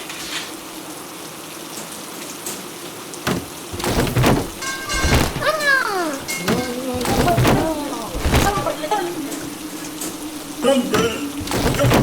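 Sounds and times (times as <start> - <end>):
rain hissing: 2.7 - 12.0.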